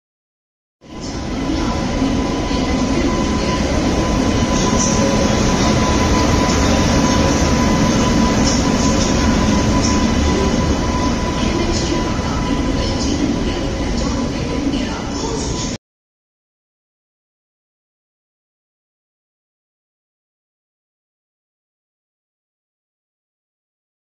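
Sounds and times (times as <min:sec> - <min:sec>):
thin steady whine: 0:00.9 - 0:15.8
train wheel noise: 0:00.9 - 0:15.8.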